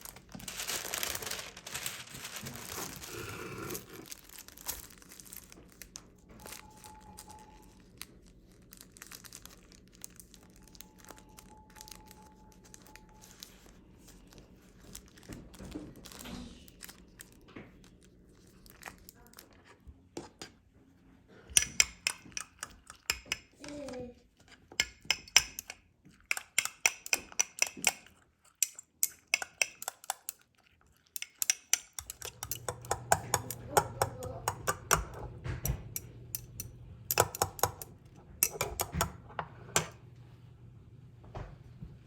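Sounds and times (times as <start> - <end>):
utensils clinking against dishes: 21.5 - 24.0, 24.8 - 30.4, 31.1 - 40.0.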